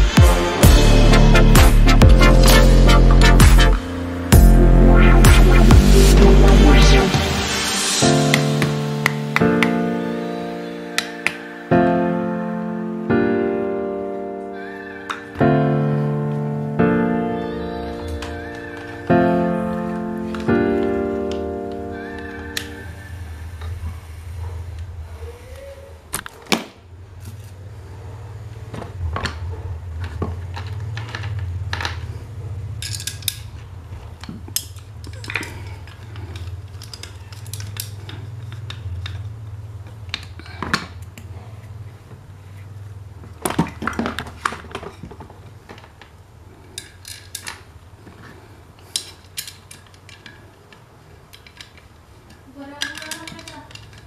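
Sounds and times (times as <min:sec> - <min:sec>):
metal fan parts clinking: 0:30.5 - 0:39.3, 0:46.6 - 0:54.0.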